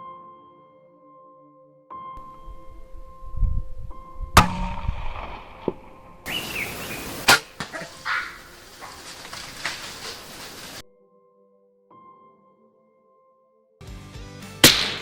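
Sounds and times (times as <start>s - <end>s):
faint steady music tone: 0.0s - 6.3s
sharp bangs: 4.4s - 7.8s, 14.6s - 15.0s
rustling commotion: 6.4s - 10.8s.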